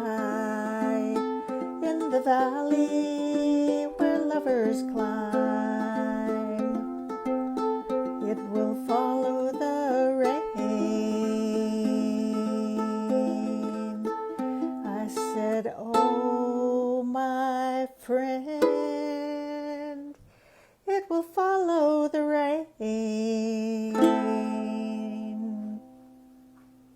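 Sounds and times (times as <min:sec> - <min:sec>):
acoustic guitar playing: 0:03.8 - 0:09.2.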